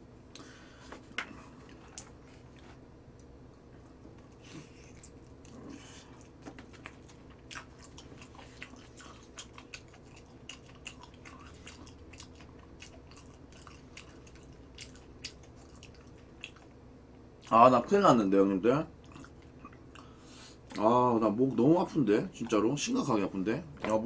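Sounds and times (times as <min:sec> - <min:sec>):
person chewing crispy chicken: 0:04.2 - 0:16.8, 0:19.0 - 0:20.2.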